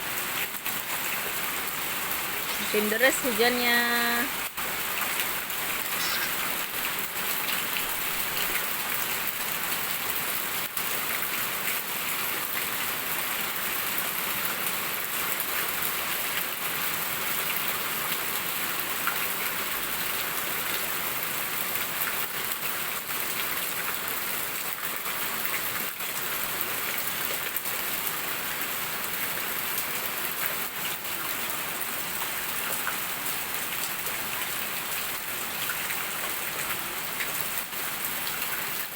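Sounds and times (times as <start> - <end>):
heavy rain hissing: 2.3 - 8.9.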